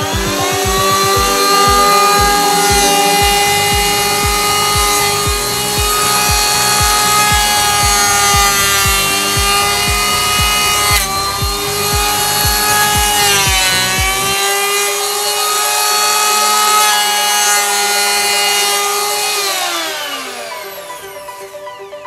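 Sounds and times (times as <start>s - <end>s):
background music with steady beat: 0.0s - 15.2s
electric hand planer shaving board: 0.0s - 22.0s.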